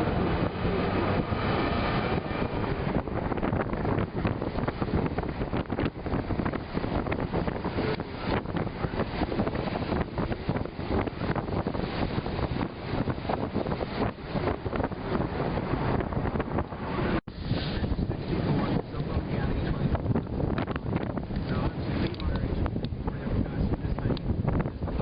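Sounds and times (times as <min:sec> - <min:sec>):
gusty wind buffeting microphone: 0:00.0 - 0:25.0.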